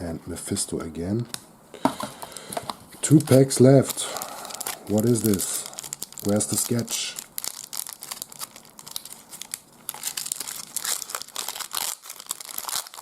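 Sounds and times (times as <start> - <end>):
wrapper crinkling and tearing: 3.0 - 13.0.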